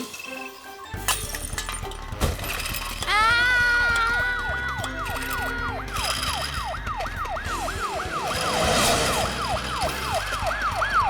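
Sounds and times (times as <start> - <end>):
cartoon ambulance siren: 3.6 - 11.0.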